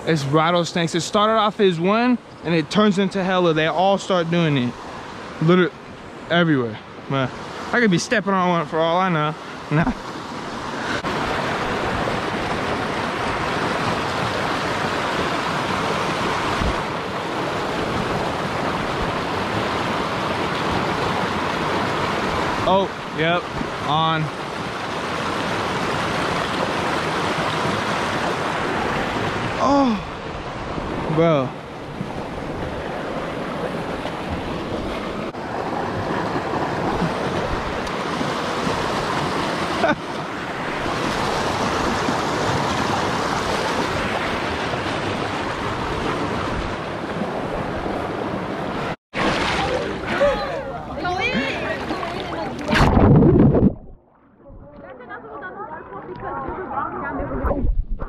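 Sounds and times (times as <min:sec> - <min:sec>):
creek rushing over rocks: 0:00.0 - 0:54.0
wind on microphone: 0:10.4 - 0:22.6, 0:31.8 - 0:39.6, 0:51.3 - 0:55.1, 0:56.1 - 0:58.0.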